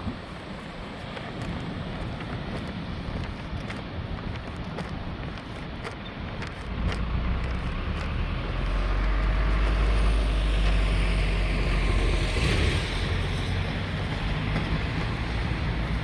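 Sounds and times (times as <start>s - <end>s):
surf washing on beach: 0.0s - 7.0s
wind buffeting microphone: 0.0s - 16.0s.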